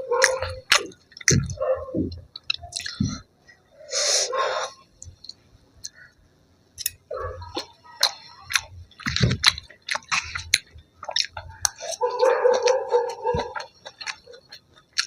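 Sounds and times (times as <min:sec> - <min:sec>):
person chewing crunchy food: 0:00.0 - 0:03.3, 0:06.8 - 0:15.0.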